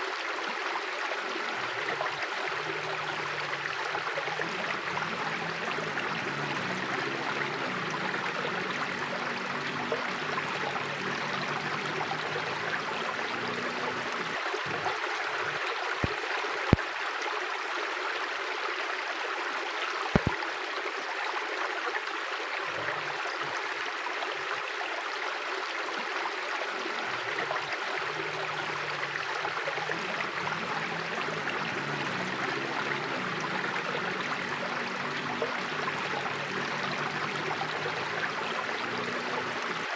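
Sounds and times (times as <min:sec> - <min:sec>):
river water rushing: 0:00.0 - 0:17.5, 0:25.5 - 0:39.9
sharp clicks: 0:20.2 - 0:20.4.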